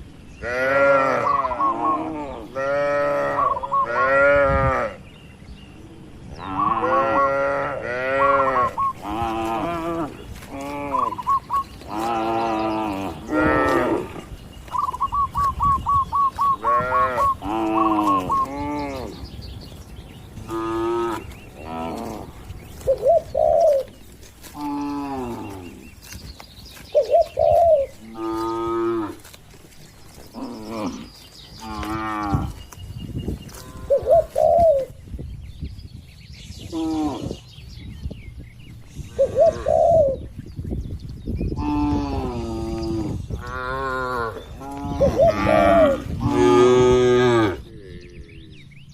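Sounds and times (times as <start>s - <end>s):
bird chirping: 0.0s - 4.2s, 8.6s - 46.2s, 47.5s - 48.9s
cattle mooing: 16.5s - 19.2s, 41.6s - 48.5s.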